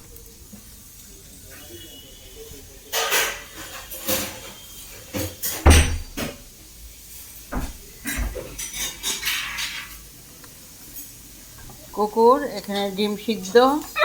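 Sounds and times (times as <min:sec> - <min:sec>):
household things knocking and rattling: 0:05.2 - 0:06.4, 0:07.5 - 0:09.9
heavy thump: 0:05.6 - 0:06.4, 0:07.5 - 0:08.4.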